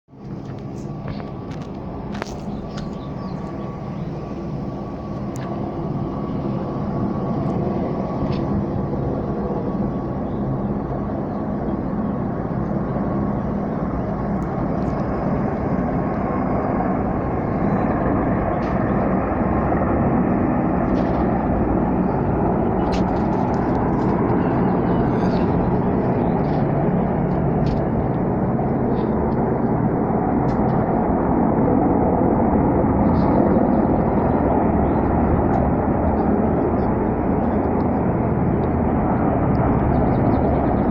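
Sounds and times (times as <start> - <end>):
aircraft engines droning: 0.1 - 40.9.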